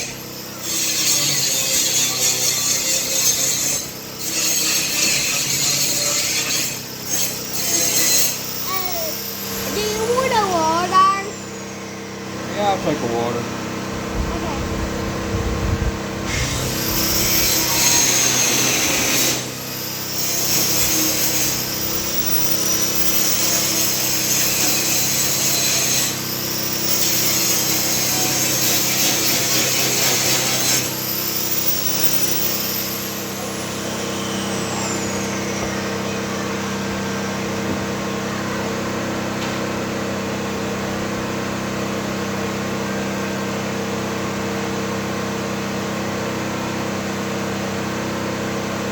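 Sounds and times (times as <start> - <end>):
chainsaw cutting wood: 16.2 - 38.2.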